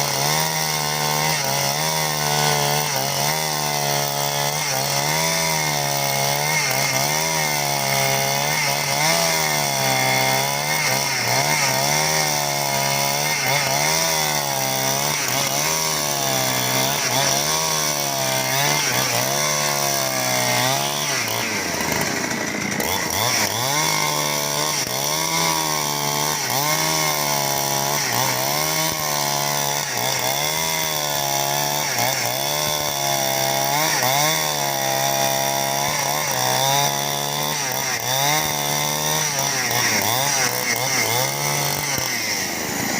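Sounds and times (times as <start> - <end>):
chainsaw cutting timber: 0.0 - 42.9.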